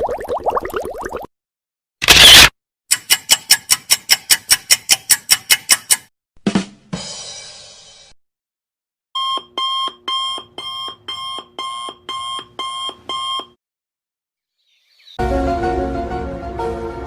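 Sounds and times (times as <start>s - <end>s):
electronic alarm beeping: 9.2s - 13.6s.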